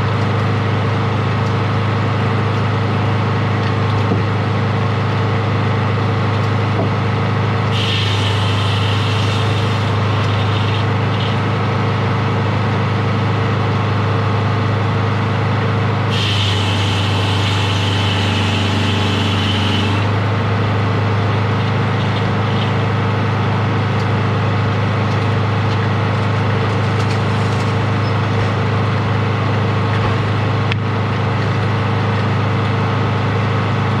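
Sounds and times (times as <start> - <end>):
sawmill engine humming: 0.0 - 33.9
hissing whine: 7.7 - 11.7, 16.0 - 20.4.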